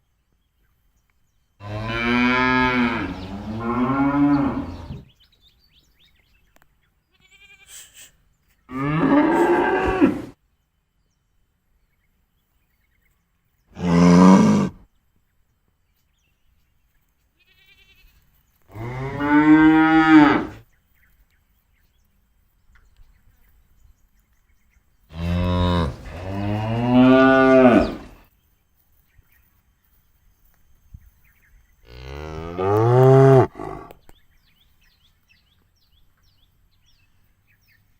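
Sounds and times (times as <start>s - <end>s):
cattle mooing: 8.7s - 10.3s, 25.1s - 28.2s, 31.9s - 34.0s.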